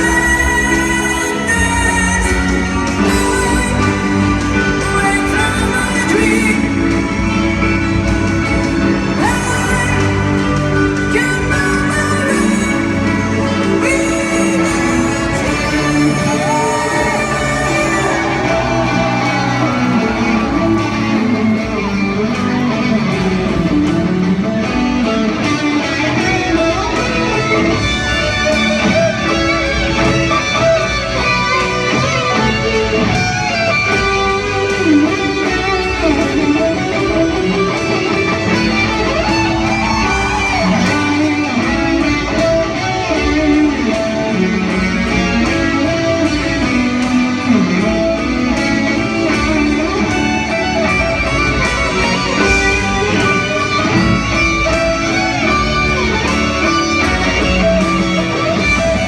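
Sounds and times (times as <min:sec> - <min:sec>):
bass guitar: 0:00.0 - 0:59.0
drums: 0:00.0 - 0:59.0
electric guitar melody: 0:00.0 - 0:59.0
strummed guitar: 0:00.0 - 0:59.0.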